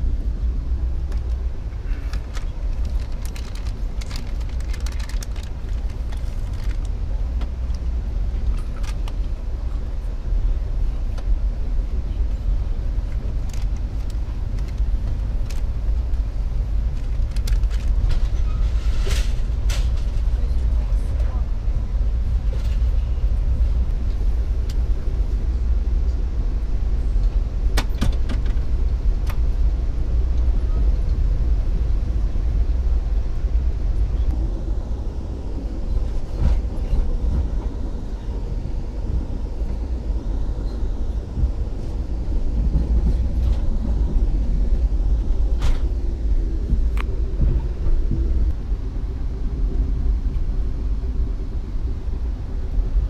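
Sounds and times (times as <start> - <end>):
moving train rumble: 0.0 - 53.0
faint clicks and rattles: 2.1 - 7.8.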